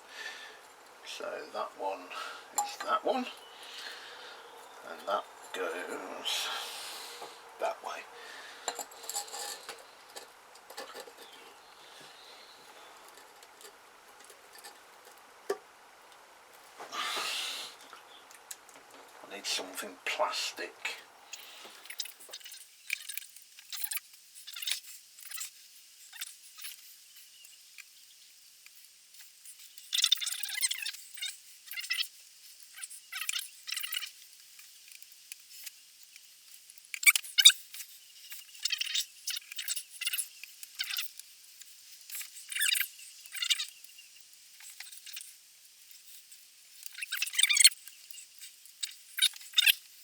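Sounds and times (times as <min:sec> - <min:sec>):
piston clicking and scraping in cylinder: 0:08.6 - 0:15.6
squeaky scraping: 0:08.7 - 0:14.8.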